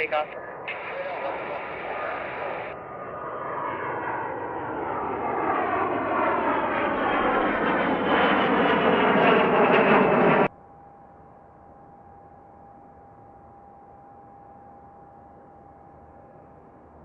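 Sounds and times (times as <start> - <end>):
propeller plane engine at takeoff: 0.0 - 10.6.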